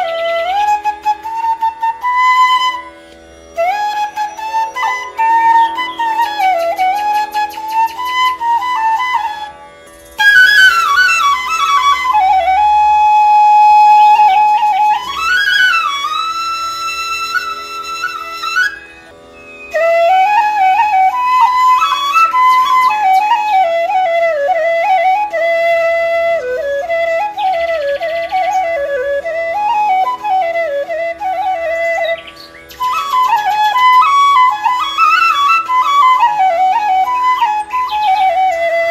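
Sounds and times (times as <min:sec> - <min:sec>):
flute melody: 0:00.0 - 0:38.9.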